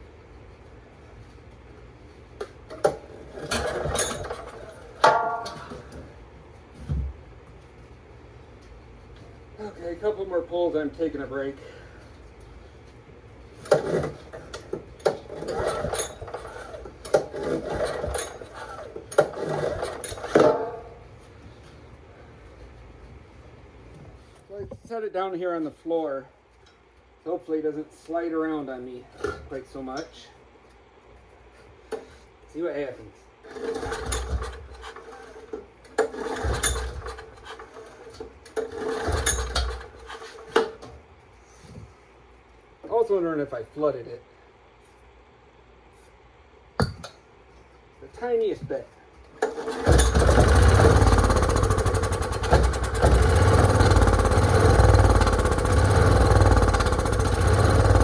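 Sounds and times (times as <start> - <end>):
generator recoil starter cranking: 2.4 - 6.0, 13.6 - 20.8, 33.4 - 40.9, 49.3 - 58.0.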